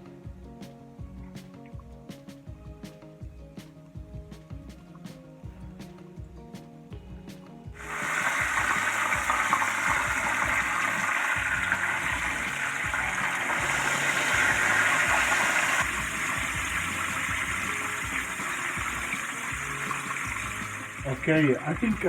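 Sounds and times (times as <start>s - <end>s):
chicken sizzling in frying oil: 7.8s - 22.0s.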